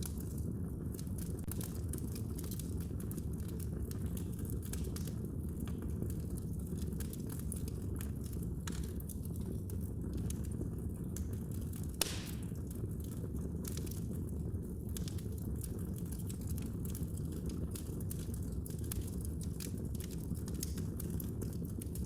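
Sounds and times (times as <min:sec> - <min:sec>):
fire crackling and popping: 0:00.0 - 0:22.0
fire flames rumbling: 0:00.0 - 0:22.0.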